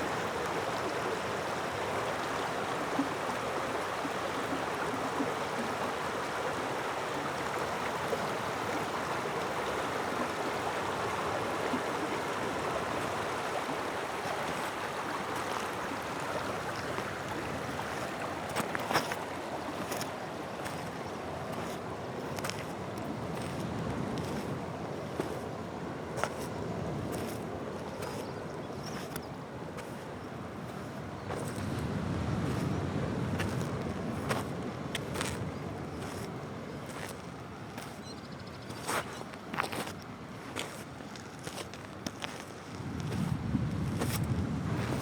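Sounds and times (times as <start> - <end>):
stream running over stones: 0.0 - 45.0.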